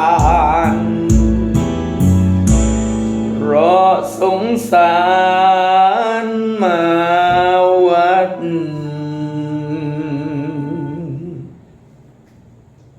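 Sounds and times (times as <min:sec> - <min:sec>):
person singing long held note: 0:03.3 - 0:11.6.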